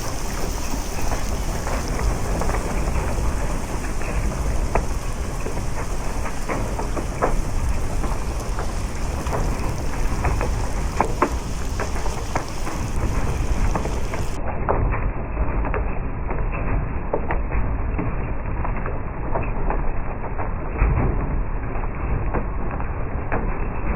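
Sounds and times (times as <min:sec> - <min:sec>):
raindrops tapping surfaces: 0:00.0 - 0:14.8, 0:15.6 - 0:23.9
heavy rain in strong wind: 0:00.0 - 0:23.9.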